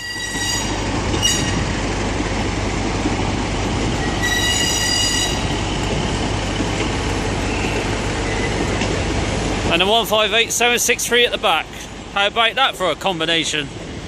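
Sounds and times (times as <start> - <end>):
high-pitched wheel squeal: 0.0 - 1.6, 4.0 - 5.5, 7.4 - 8.6
train rumbling past: 0.0 - 14.0.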